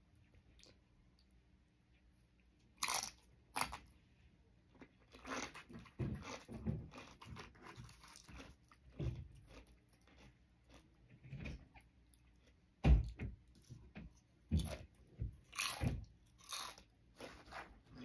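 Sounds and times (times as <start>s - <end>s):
crunchy chewing: 2.8s - 3.9s, 4.8s - 12.7s, 14.6s - 18.0s
tortilla chip crunching: 2.8s - 3.9s, 4.8s - 11.0s, 15.5s - 18.0s.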